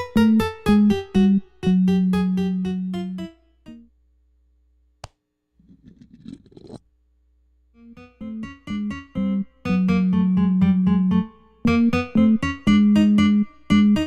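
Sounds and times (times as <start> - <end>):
electric piano music: 0.0 - 3.9, 7.8 - 14.0.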